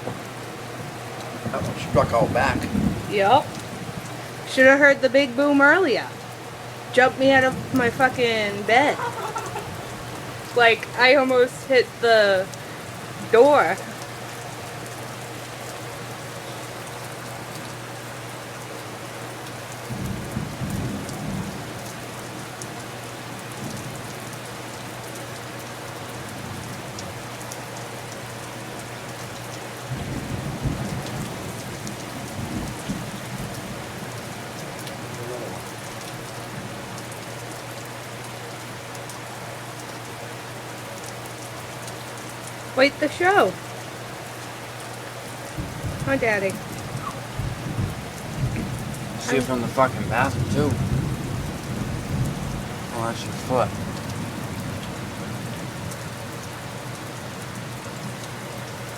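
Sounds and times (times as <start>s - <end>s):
steady rain falling: 0.0s - 58.9s
low thunder rumbling: 1.3s - 14.1s, 19.9s - 22.4s, 29.8s - 37.0s, 45.5s - 56.3s.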